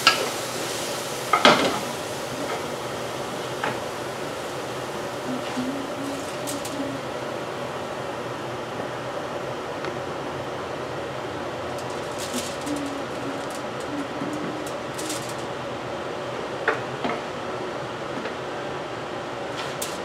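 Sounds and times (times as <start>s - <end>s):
steady background hum: 0.0s - 20.0s
aluminium foil crinkling: 5.3s - 7.1s, 11.6s - 15.6s, 19.5s - 20.0s.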